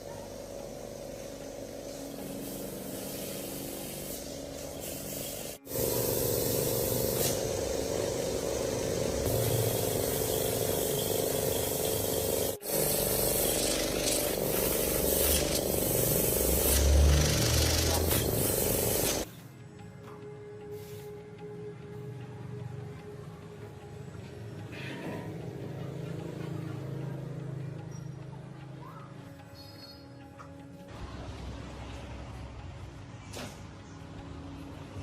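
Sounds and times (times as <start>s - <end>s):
hissing spray: 0.1s - 19.3s.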